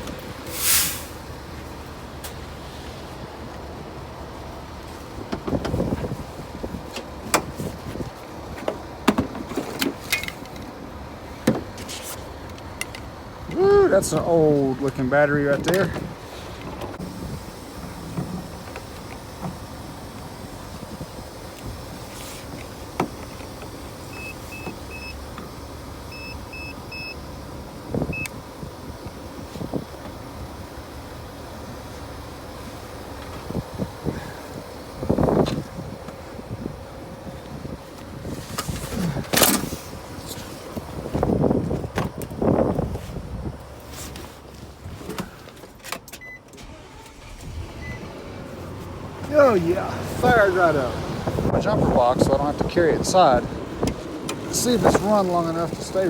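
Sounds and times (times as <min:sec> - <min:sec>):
wind noise: 0:05.2 - 0:08.2, 0:27.8 - 0:30.0, 0:33.3 - 0:44.0, 0:47.1 - 0:56.0
car door and hood clunks: 0:08.5 - 0:10.4
steady low rumble: 0:46.7 - 0:56.0.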